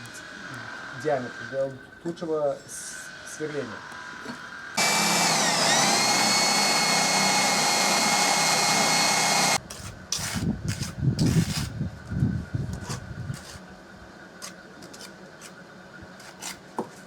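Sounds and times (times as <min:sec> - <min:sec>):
electric drill boring into brick: 0:04.8 - 0:09.6.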